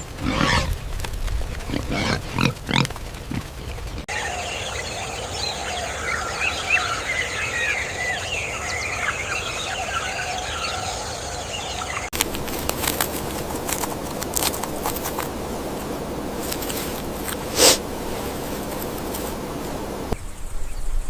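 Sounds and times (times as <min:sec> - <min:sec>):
rough low calls: 0:00.0 - 0:20.4
birds chirping and calling: 0:01.7 - 0:20.4
steady high hiss: 0:12.2 - 0:20.6.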